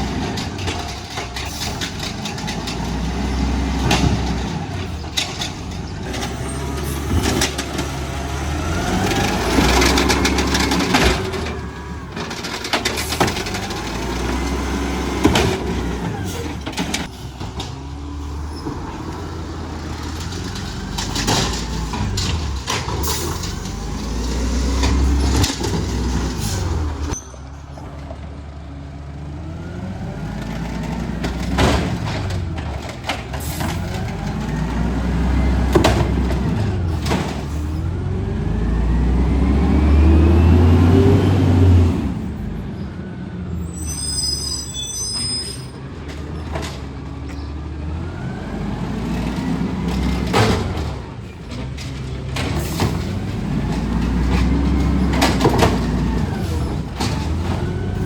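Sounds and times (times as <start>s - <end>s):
garbage truck engine revving: 0.0s - 44.4s, 45.0s - 58.0s
high squeal: 26.5s - 27.8s, 43.6s - 45.9s.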